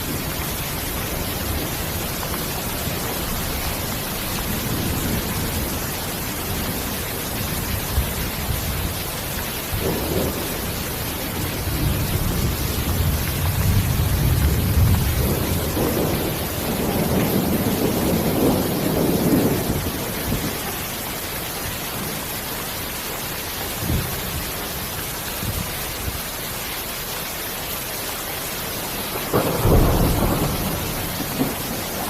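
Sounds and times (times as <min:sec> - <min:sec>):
rolling thunder: 0:00.0 - 0:21.0, 0:23.8 - 0:24.8, 0:29.0 - 0:32.0
steady rain hiss: 0:00.0 - 0:32.0.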